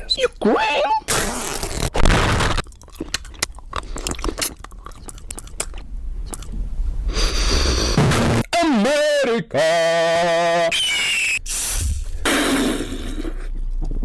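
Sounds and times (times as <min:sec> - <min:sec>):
crunching crackling noise: 0:00.5 - 0:06.6
loud hiss: 0:11.4 - 0:13.2.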